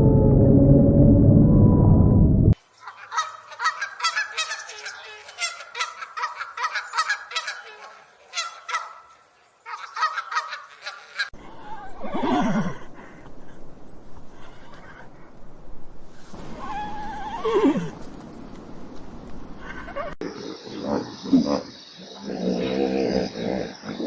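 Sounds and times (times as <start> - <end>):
fowl honking cries: 2.8 - 11.3
animal call falling in pitch: 16.4 - 18.0.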